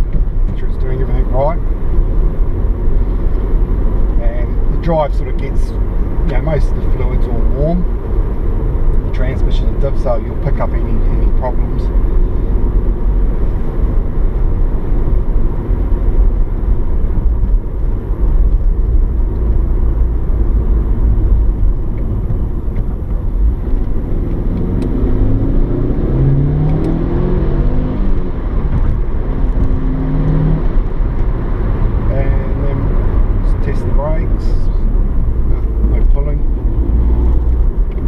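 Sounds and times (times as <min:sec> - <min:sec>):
car engine accelerating: 0:00.0 - 0:38.0
road rumble: 0:00.0 - 0:38.0.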